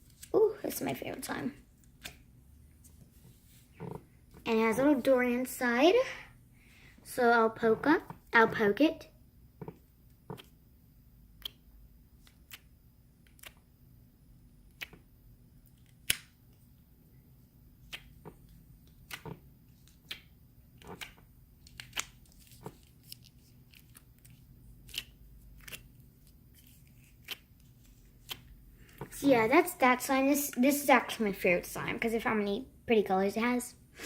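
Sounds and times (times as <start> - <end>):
fingers squishing slime: 9.6 - 10.6, 11.2 - 13.8, 14.6 - 16.3, 17.7 - 29.2.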